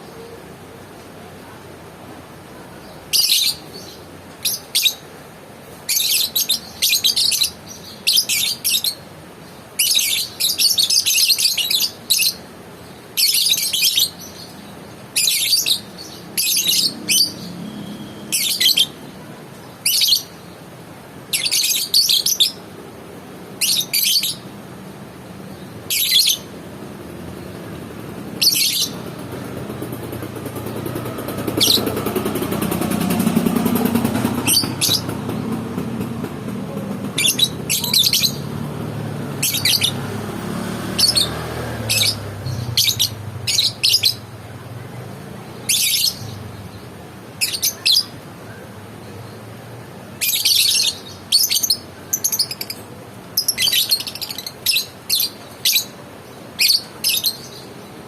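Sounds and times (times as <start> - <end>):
bird shrill chirping: 15.2 - 19.0, 25.9 - 26.5, 28.4 - 29.0, 37.2 - 38.5, 39.4 - 40.0, 41.0 - 44.2, 45.7 - 46.4, 53.4 - 55.9.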